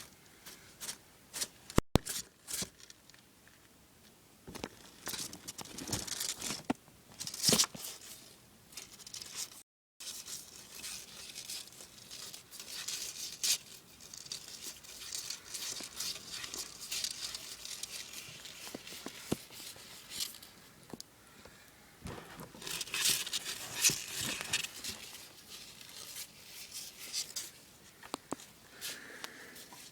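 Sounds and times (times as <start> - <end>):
crackling and rustling: 0.0 - 21.1, 22.0 - 29.9
lizard crunching prey: 10.7 - 20.6.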